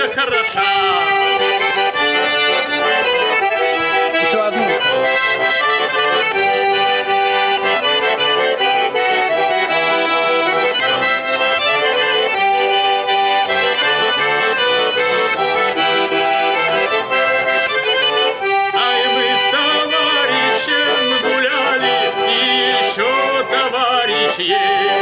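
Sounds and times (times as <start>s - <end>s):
accordion folk dance tune: 0.0s - 25.0s.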